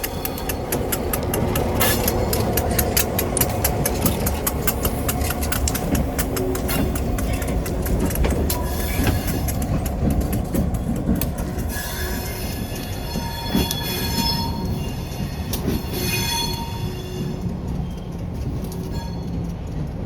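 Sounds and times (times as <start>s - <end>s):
train wheels squealing: 0.0s - 3.0s, 6.6s - 9.8s, 10.9s - 19.9s
train wheels clicking: 0.0s - 20.0s.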